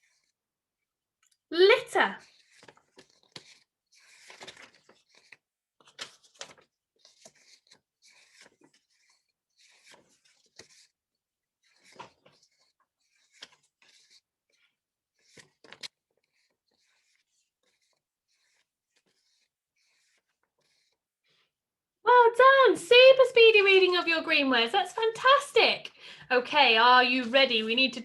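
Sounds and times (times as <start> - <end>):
rustling and handling noises: 2.2 - 21.4.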